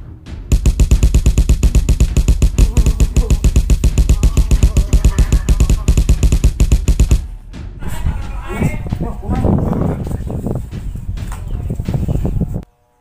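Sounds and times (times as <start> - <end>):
punch sound effects: 0.5 - 8.5.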